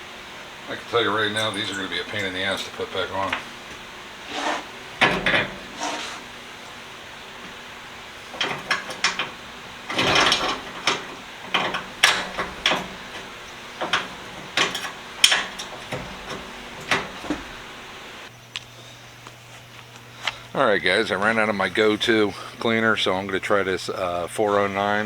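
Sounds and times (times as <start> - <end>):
steady low hum: 0.0 - 25.0
metal tool box parts clanking: 0.7 - 18.3.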